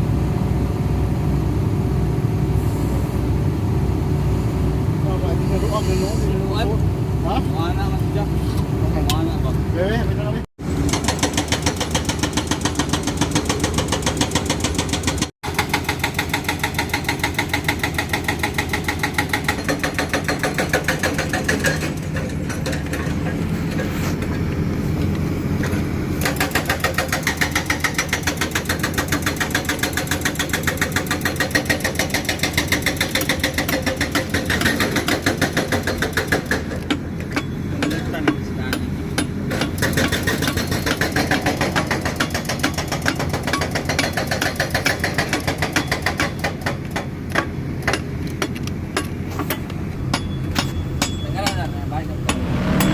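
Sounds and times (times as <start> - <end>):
excavator diesel engine running: 10.6 - 38.2.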